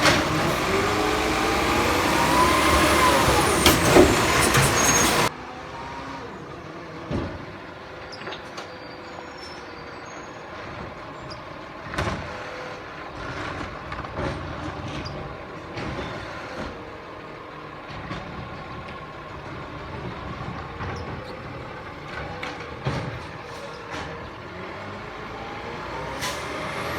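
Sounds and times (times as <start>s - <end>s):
short knocks and clanks: 0.0s - 5.3s
garbage truck running: 0.0s - 26.9s.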